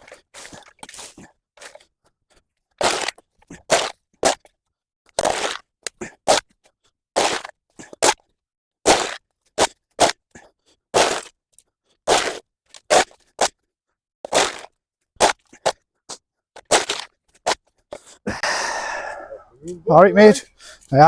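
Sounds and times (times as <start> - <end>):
tool scraping mud off path: 0.0 - 1.9, 2.8 - 4.5, 5.2 - 6.6, 7.2 - 11.4, 12.0 - 13.6, 14.2 - 18.1.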